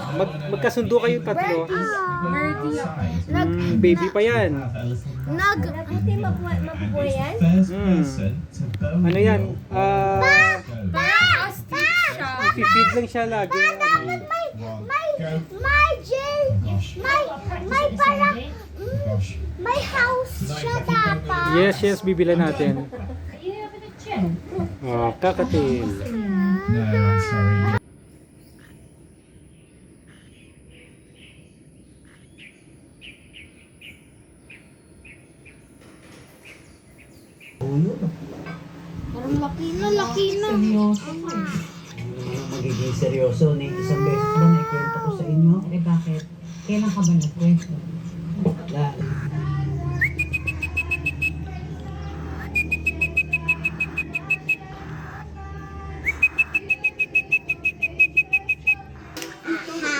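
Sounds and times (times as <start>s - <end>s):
low steady background noise: 0.0s - 59.9s
steady low hum: 37.6s - 59.9s
cockatiel chick chirping: 49.0s - 58.8s.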